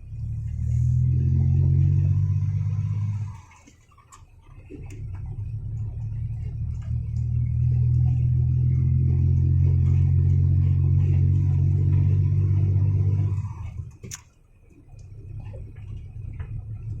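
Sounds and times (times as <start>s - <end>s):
truck diesel engine running hard: 4.9s - 13.9s.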